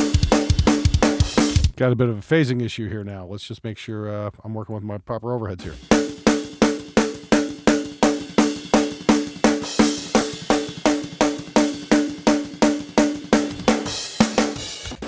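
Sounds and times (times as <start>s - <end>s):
kick drum: 0.0s - 1.8s
snare drum: 0.0s - 1.8s, 5.6s - 15.0s.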